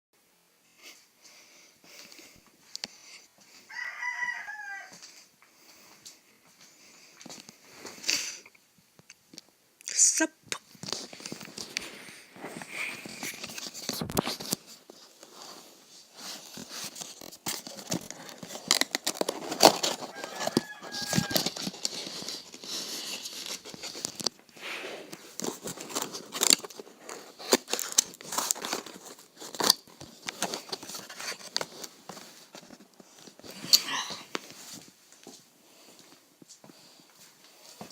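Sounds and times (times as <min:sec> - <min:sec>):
packaging tearing and crinkling: 0:16.2 - 0:24.4, 0:25.1 - 0:33.8.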